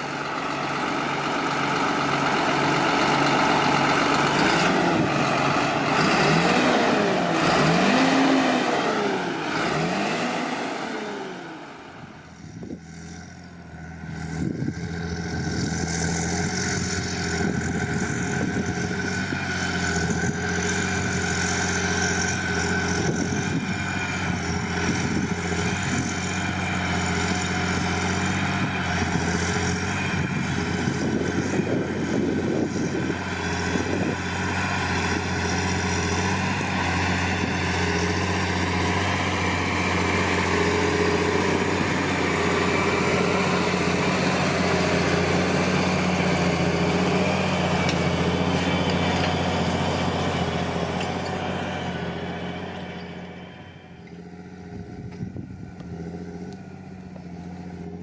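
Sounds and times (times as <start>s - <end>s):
diesel tractor engine running: 0.0s - 58.0s.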